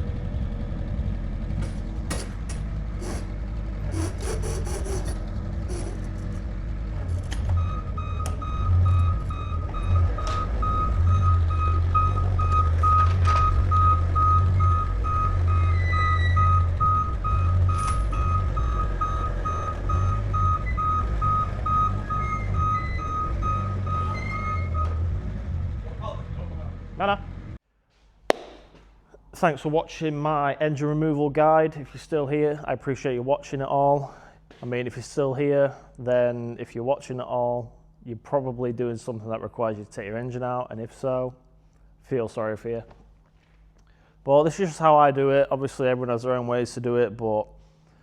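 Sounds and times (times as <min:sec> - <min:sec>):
low mechanical drone: 0:00.0 - 0:27.6
knocks and clicks: 0:01.6 - 0:08.5.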